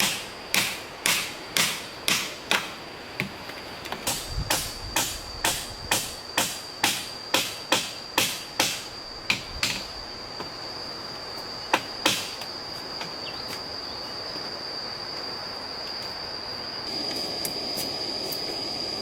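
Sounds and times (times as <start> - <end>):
hammering blows: 0.0 - 3.3, 4.0 - 9.8, 11.7 - 12.4
high-pitched insect drone: 4.0 - 19.0.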